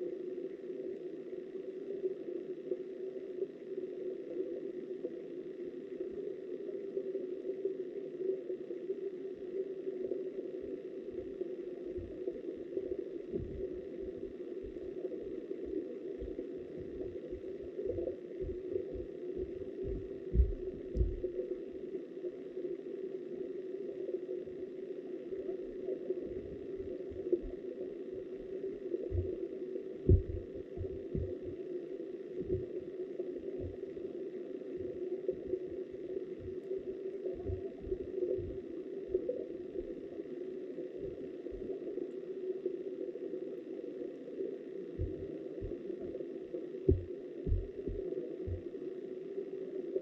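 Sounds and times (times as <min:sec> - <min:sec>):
muffled underwater river rush: 0:06.0 - 0:50.0
dull low thumps: 0:13.3 - 0:14.8, 0:16.2 - 0:21.3, 0:29.1 - 0:29.4, 0:30.0 - 0:31.6, 0:32.4 - 0:32.7, 0:37.4 - 0:38.6, 0:45.0 - 0:45.8, 0:46.9 - 0:48.6.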